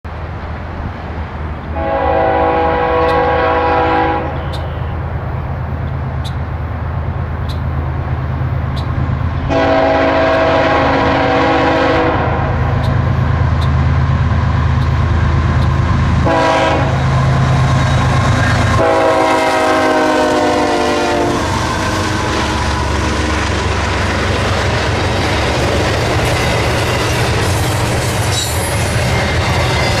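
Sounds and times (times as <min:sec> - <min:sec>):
diesel locomotive engines rumbling: 0:00.1 - 0:30.0
train air horn blasts: 0:01.7 - 0:05.0, 0:09.4 - 0:12.7, 0:16.2 - 0:17.1, 0:18.6 - 0:22.6
freight cars rattling by: 0:04.2 - 0:30.0.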